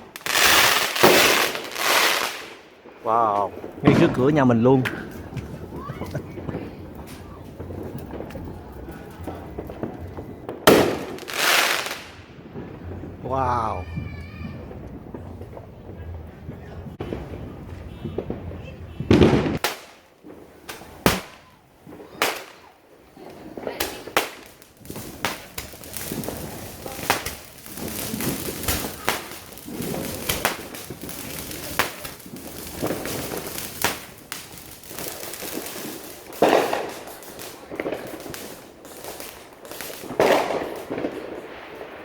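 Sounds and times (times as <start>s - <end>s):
firecrackers bangs and crackles: 0.0s - 42.0s
heavy fireworks bangs: 0.0s - 42.0s.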